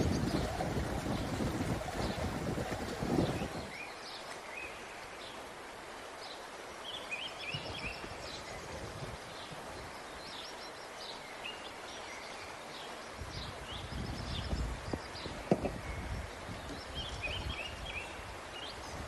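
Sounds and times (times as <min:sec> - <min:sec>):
outdoor background hiss: 0:03.6 - 0:19.0
small birds chirping: 0:06.1 - 0:19.0.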